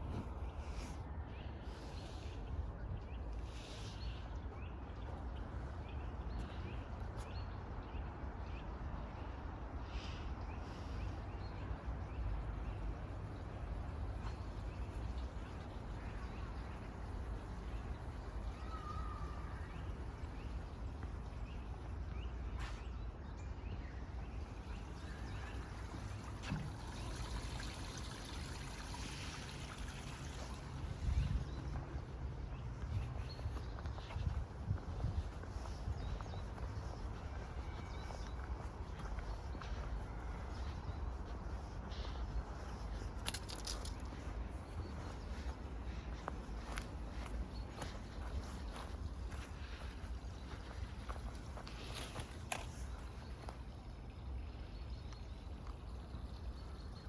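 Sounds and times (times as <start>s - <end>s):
stream trickling: 11.2s - 22.1s, 24.0s - 57.0s.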